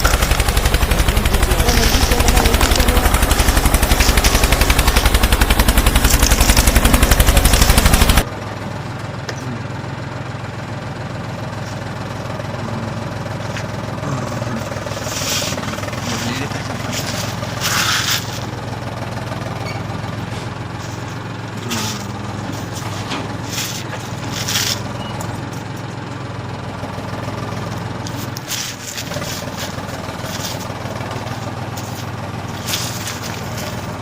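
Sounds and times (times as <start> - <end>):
small motor humming: 0.0 - 34.0
short scraping noises: 13.5 - 18.6, 19.6 - 25.0, 28.2 - 30.8.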